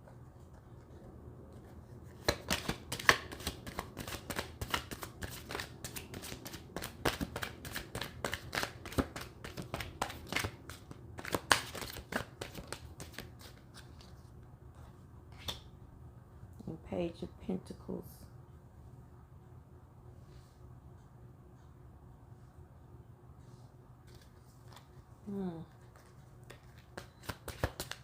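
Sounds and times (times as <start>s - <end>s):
cards being shuffled: 1.6s - 14.2s, 24.0s - 25.0s, 25.7s - 28.0s.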